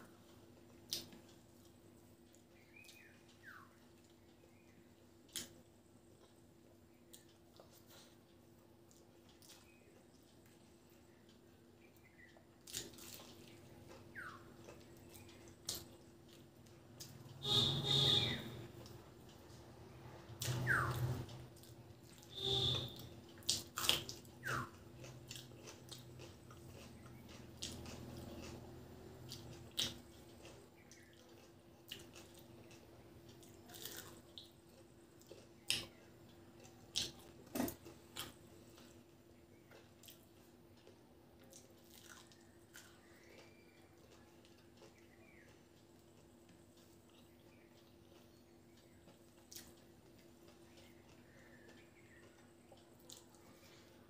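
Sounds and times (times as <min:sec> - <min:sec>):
wet chewing and lip smacks: 0:07.0 - 0:17.2, 0:23.0 - 0:39.0, 0:39.6 - 0:53.7.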